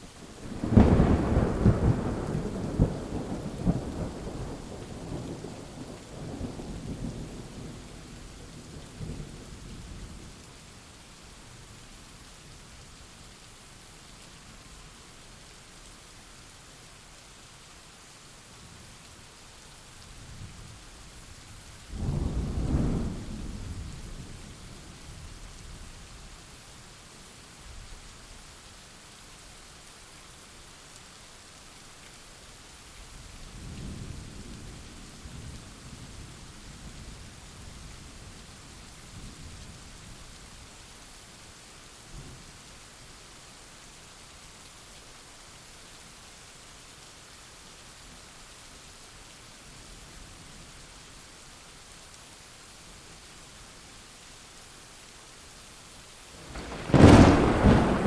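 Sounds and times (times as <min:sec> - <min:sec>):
heavy rain: 0:00.0 - 0:58.0
rolling thunder: 0:56.4 - 0:58.0.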